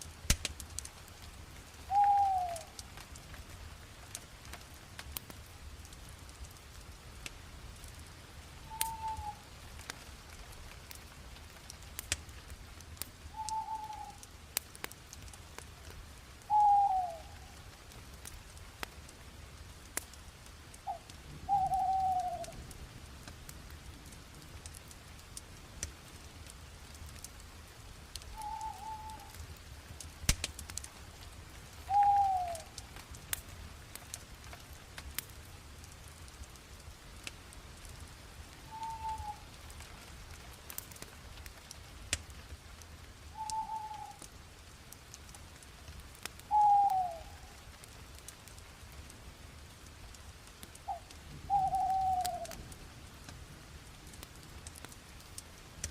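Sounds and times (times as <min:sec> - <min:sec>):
campfire crackling: 0:00.0 - 0:55.9
bird calling: 0:01.9 - 0:02.7, 0:08.7 - 0:09.4, 0:13.4 - 0:14.2, 0:16.5 - 0:17.4, 0:20.9 - 0:22.5, 0:28.4 - 0:29.4, 0:31.9 - 0:32.8, 0:38.7 - 0:39.5, 0:43.4 - 0:44.2, 0:46.5 - 0:47.5, 0:50.9 - 0:52.5.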